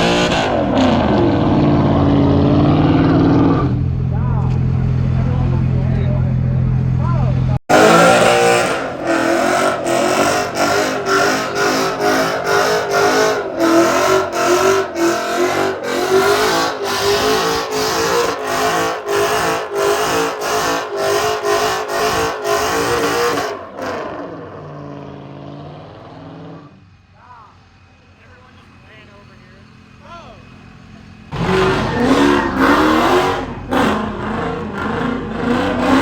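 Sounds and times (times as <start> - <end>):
car engine bouncing off rev limiter: 6.7 - 26.8, 30.6 - 36.0.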